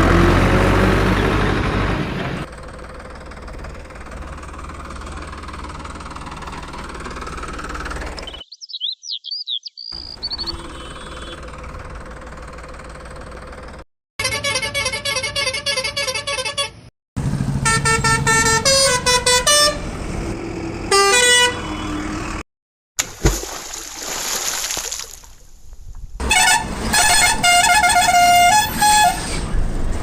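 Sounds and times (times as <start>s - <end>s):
vehicle horn honks: 10.4s - 11.5s, 14.2s - 16.9s, 17.6s - 19.9s, 20.9s - 22.1s, 26.2s - 29.4s.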